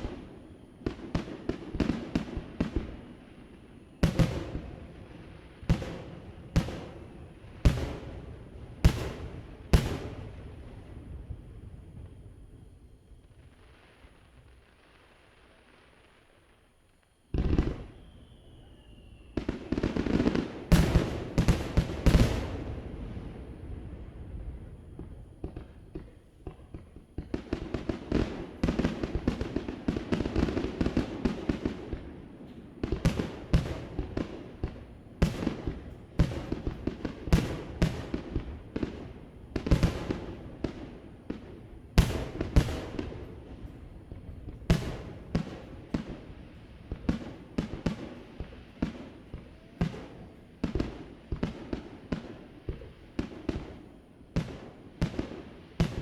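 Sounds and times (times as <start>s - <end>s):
fireworks booms and crackling: 0.0s - 16.6s, 17.3s - 56.0s.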